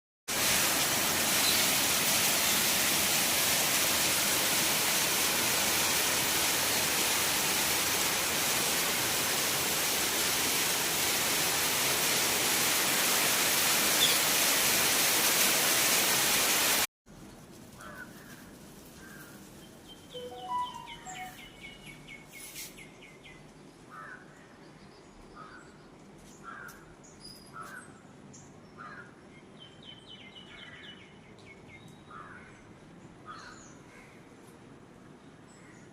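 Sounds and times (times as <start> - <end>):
heavy rain falling: 0.3 - 16.9
birds chirping and calling: 20.2 - 22.1.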